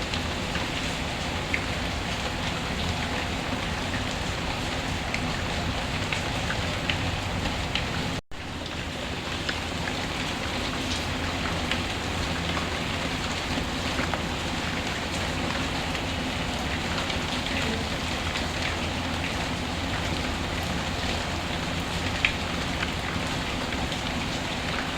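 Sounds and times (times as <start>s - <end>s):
steady rain falling: 0.0s - 24.9s.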